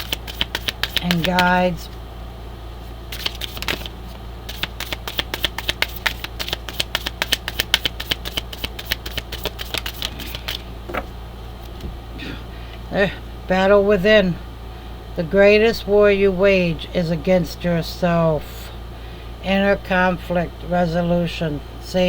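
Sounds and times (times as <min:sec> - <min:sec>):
cards being shuffled: 0:00.0 - 0:01.5, 0:02.8 - 0:11.8.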